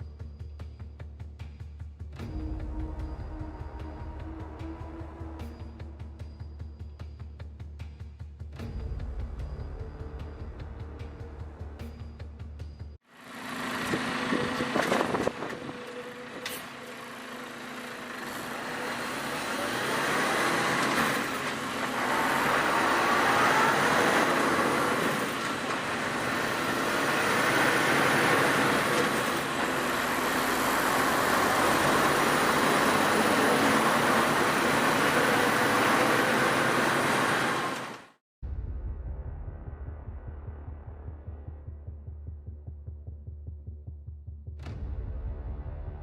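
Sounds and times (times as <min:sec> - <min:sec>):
tyre and engine noise: 0:13.1 - 0:38.2.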